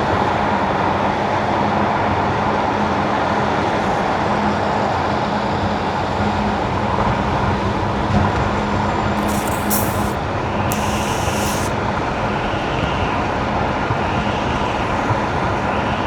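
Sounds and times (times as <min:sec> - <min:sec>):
brief high hiss: 0:09.2 - 0:11.8.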